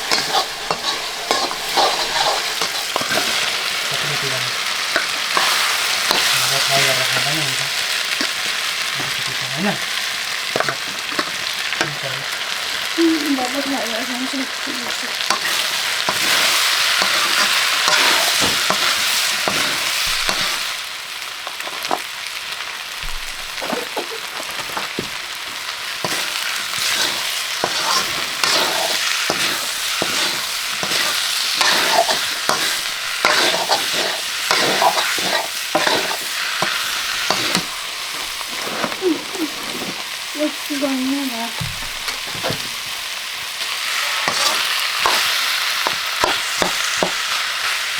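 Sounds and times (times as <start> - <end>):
spoon scraping against pan: 0.0 - 7.3, 10.5 - 12.5, 15.1 - 20.8, 26.0 - 40.2, 43.8 - 47.8
food sizzling in hot oil: 0.0 - 47.9.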